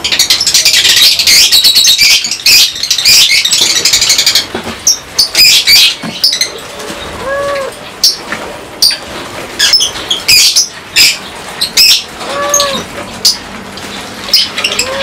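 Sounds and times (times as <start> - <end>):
lovebirds chirping: 0.0 - 15.0
low rounded animal call: 6.8 - 7.8, 12.2 - 12.9, 14.7 - 15.0.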